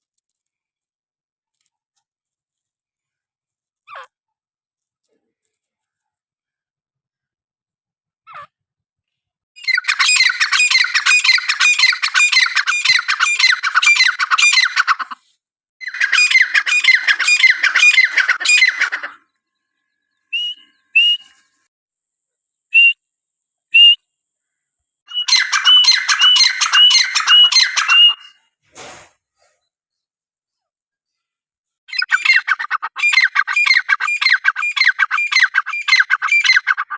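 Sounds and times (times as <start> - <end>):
francolin calling: 15.8 - 19.3, 19.9 - 21.4, 25.1 - 28.4.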